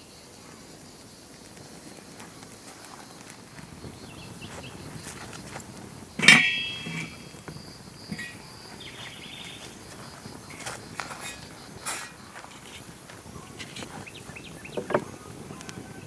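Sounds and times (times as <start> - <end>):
outdoor background hiss: 0.0 - 16.0
sharp ringing clank: 6.2 - 7.4, 8.1 - 9.2.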